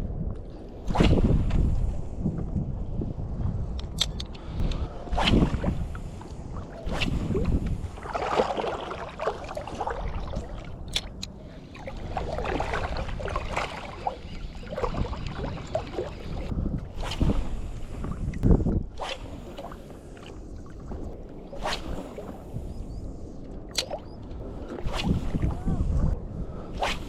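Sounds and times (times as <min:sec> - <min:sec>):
wind rumbling on microphone: 0:00.0 - 0:27.0
water sloshing and splashing: 0:05.1 - 0:22.6.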